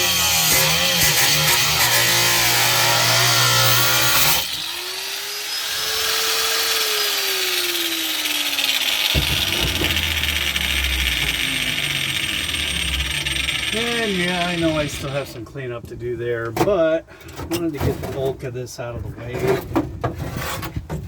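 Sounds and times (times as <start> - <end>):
power grinder on sheet metal: 0.0 - 15.4.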